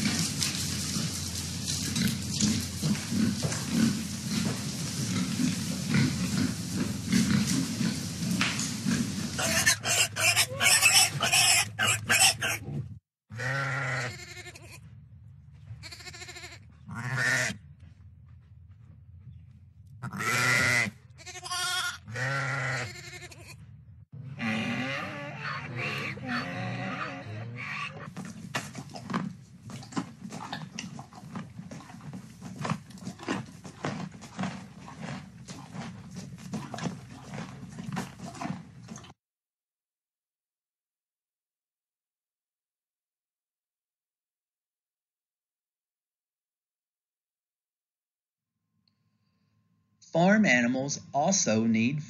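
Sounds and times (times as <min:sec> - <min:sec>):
livestock knocking and shuffling: 0:00.0 - 0:10.0, 0:14.8 - 0:20.1, 0:28.0 - 0:39.1
livestock bleating: 0:13.3 - 0:14.8, 0:15.8 - 0:17.6, 0:20.0 - 0:23.6.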